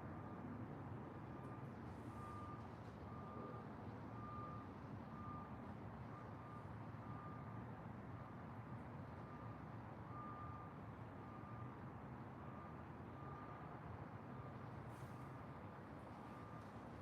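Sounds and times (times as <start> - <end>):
faint reversing alarm beeping: 1.4 - 7.5, 9.2 - 11.8, 12.4 - 13.8.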